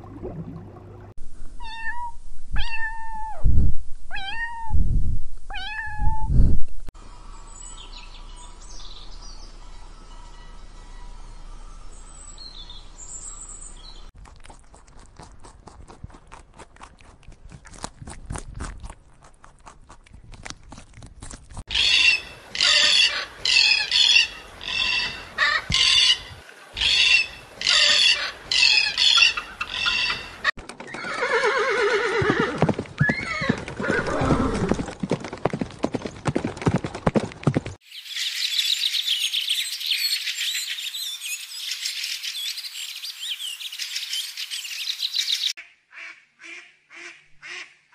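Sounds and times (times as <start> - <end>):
eagle calling: 21.7 - 30.5.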